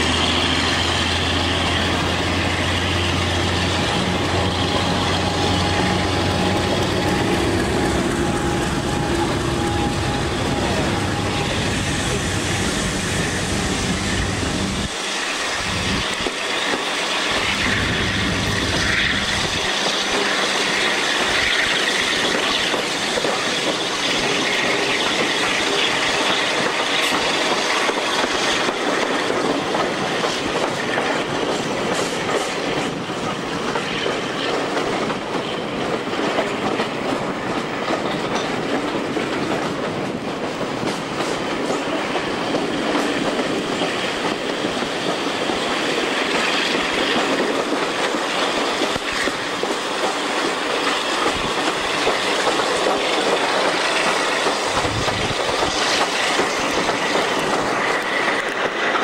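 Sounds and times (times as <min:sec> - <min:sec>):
train running noise: 0:00.0 - 0:59.0
wheels clicking over rail joints: 0:16.0 - 0:59.0.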